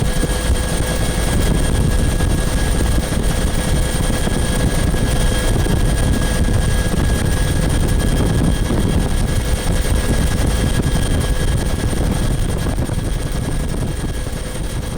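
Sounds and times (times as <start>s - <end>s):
helicopter rotor rumble: 0.0s - 14.9s
high turbine whine: 0.0s - 14.9s.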